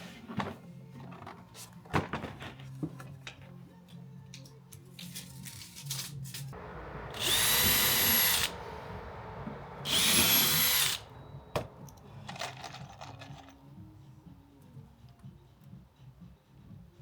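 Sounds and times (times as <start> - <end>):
power tool motor whining: 6.6 - 12.2.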